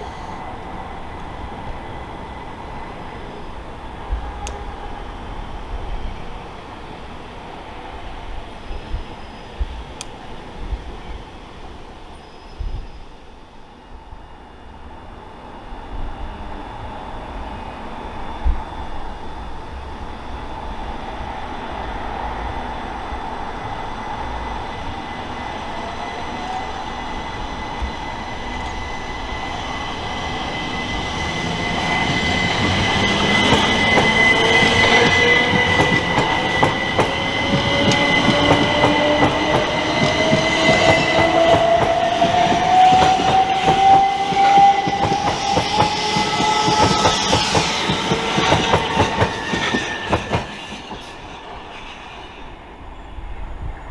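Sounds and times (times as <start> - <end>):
traction motor whine rising: 24.8 - 50.2
train wheels clacking over rail joints: 32.2 - 51.2.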